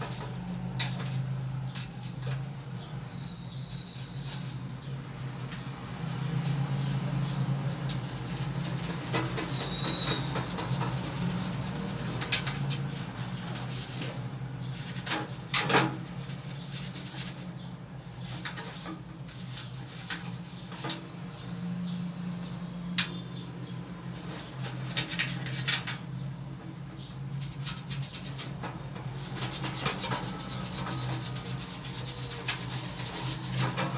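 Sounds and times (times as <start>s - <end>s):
brush scrubbing: 5.2s - 17.5s, 27.4s - 33.9s.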